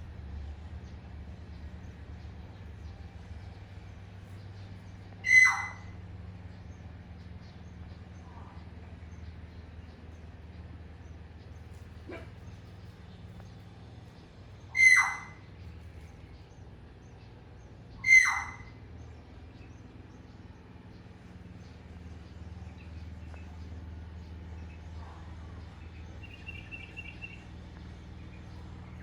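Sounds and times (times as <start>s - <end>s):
faint low hum: 0.0s - 29.0s
sparrow chirps: 4.3s - 8.2s, 14.2s - 25.0s, 25.6s - 29.0s.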